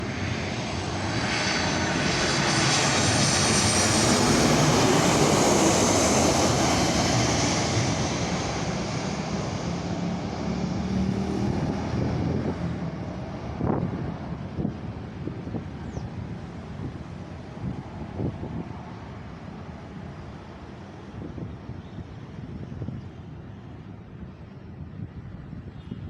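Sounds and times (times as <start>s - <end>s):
airliner engine noise: 0.0s - 26.0s.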